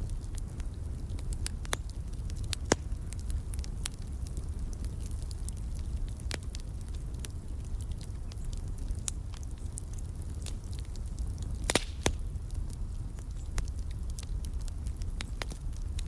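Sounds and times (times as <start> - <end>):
low rumble of flame: 0.0 - 16.0
wood fire crackling: 0.0 - 16.0
loud fire pop: 11.6 - 12.2.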